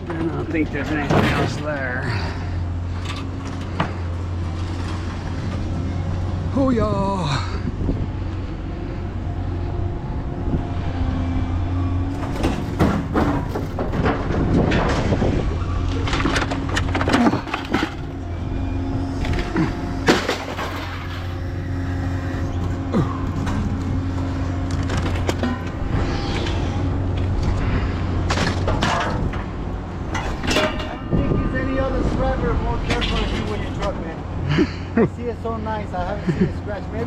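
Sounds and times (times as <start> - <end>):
scrap metal clanking: 0.0 - 5.2, 12.1 - 18.4, 19.2 - 26.8, 27.4 - 31.6, 32.8 - 34.0.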